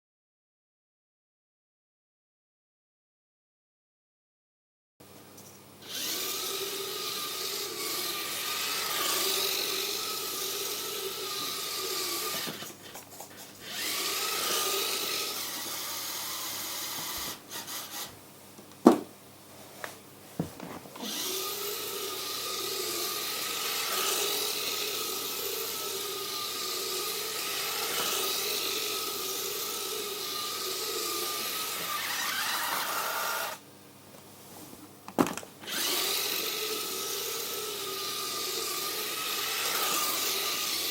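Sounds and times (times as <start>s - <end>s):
toy car electric motors whining: 5.8s - 18.2s, 21.0s - 33.6s, 35.6s - 40.9s.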